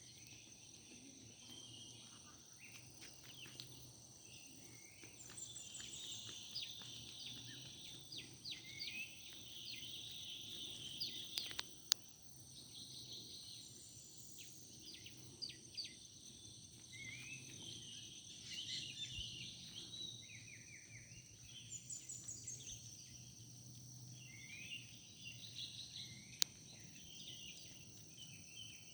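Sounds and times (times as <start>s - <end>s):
birds chirping and trilling: 0.0s - 28.9s
high insect drone: 0.0s - 28.9s
sharp clicks: 11.3s - 12.0s.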